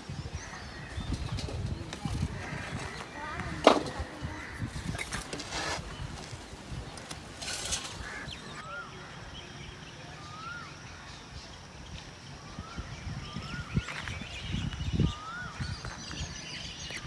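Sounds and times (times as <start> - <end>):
faint bird chirps: 7.6 - 17.0.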